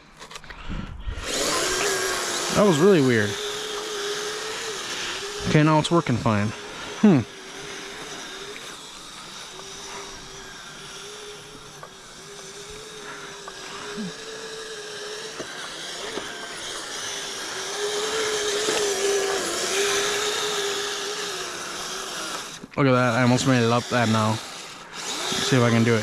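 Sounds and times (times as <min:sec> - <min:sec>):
electric motors whining: 0:00.0 - 0:26.0.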